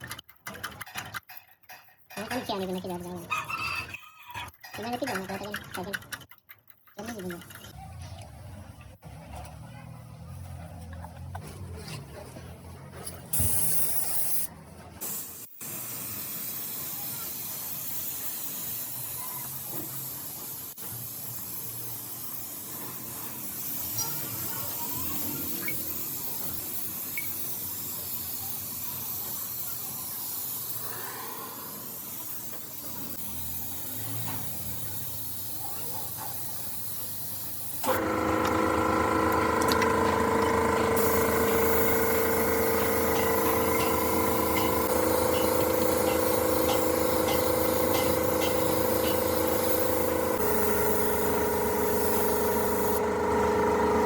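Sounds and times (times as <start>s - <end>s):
spraying hiss: 13.4s - 38.0s, 41.0s - 53.0s
machine humming: 37.8s - 54.0s.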